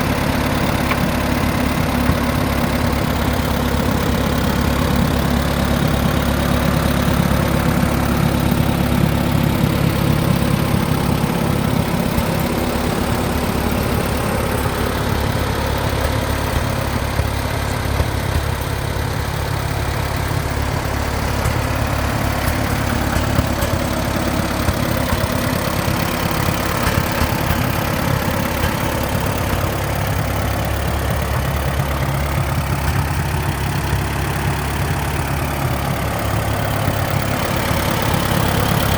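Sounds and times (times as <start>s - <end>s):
tractor engine idling: 0.0s - 38.9s.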